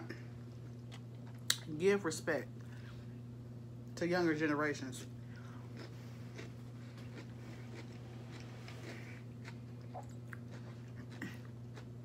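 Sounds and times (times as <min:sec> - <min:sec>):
steady low hum: 0:00.0 - 0:12.0
cucumber crunching being chewed: 0:05.0 - 0:12.0.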